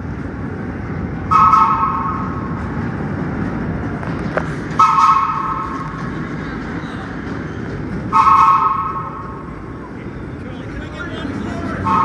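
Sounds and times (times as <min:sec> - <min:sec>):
train rumble: 0:00.0 - 0:12.0
subway train horn toots: 0:01.2 - 0:02.6, 0:04.7 - 0:06.0, 0:08.0 - 0:12.0.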